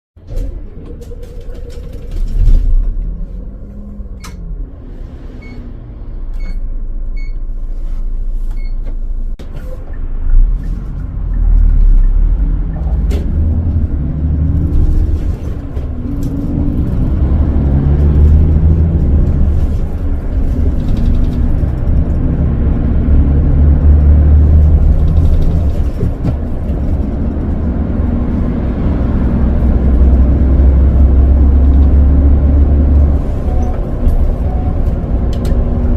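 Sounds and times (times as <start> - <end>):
bus engine starting and idling: 0.2 - 35.9
bus pulling away: 0.2 - 35.9.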